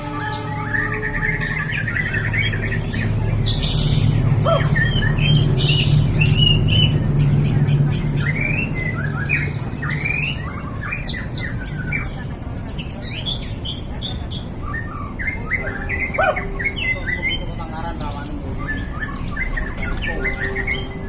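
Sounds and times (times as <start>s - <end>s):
bird whistling song: 0.0s - 17.6s, 18.2s - 21.0s.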